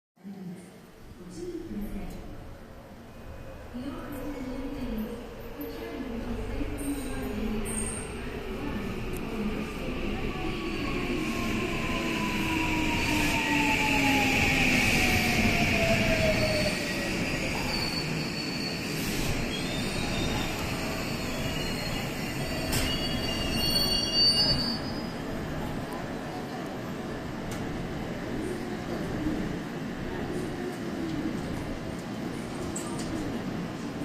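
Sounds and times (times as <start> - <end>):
brake and wheel squeals: 21.2 - 25.2.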